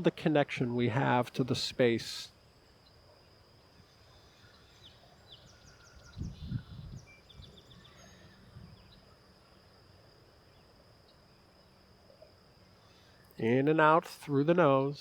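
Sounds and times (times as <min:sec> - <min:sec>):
insect drone: 0:00.0 - 0:15.0
bird chirps: 0:02.6 - 0:09.7.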